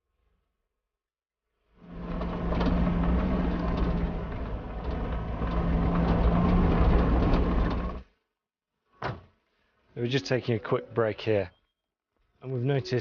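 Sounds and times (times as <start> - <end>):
lorry engine labouring: 1.8 - 8.1
truck body knocks and rattles: 2.0 - 8.0.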